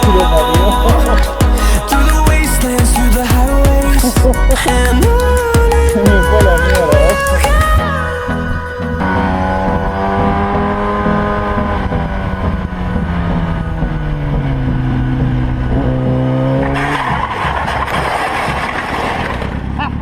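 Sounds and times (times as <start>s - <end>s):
motorcycle engine running: 0.0s - 7.9s, 9.2s - 20.0s
loud rough skidding: 9.1s - 20.0s.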